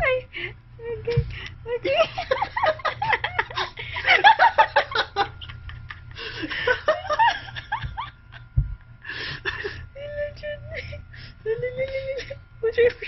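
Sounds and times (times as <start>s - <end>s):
low thump: 8.6s - 8.8s.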